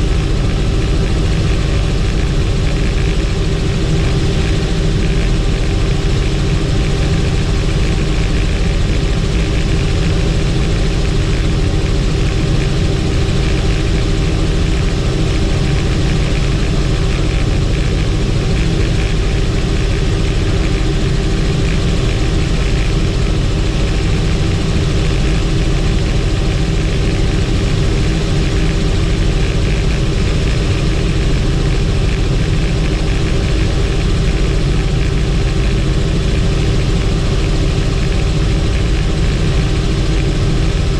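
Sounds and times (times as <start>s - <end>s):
helicopter engine and rotor drone: 0.0s - 40.9s.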